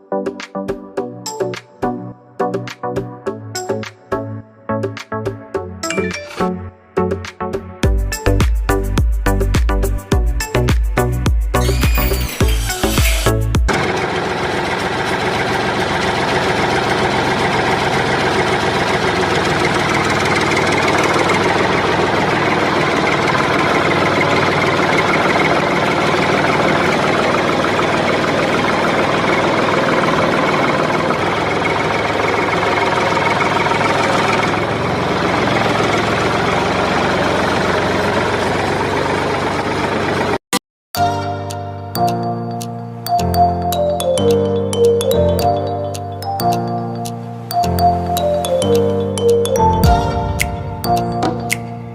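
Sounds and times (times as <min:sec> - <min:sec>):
small electric motor running: 0:11.6 - 0:38.6.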